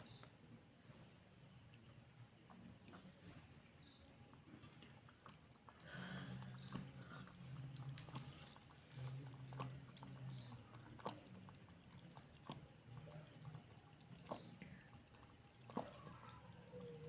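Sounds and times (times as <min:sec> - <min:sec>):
cat eating wet clicks: 0:04.3 - 0:16.3.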